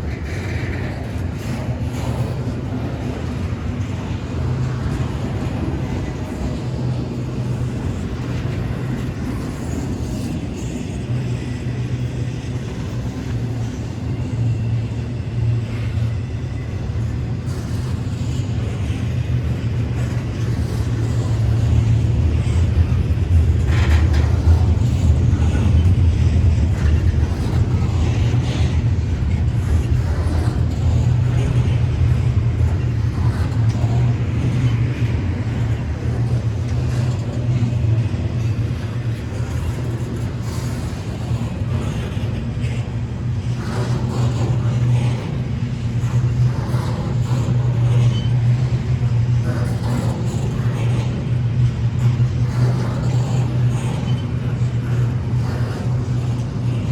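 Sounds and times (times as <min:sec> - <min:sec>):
freight train rumbling past: 0:00.0 - 0:56.9.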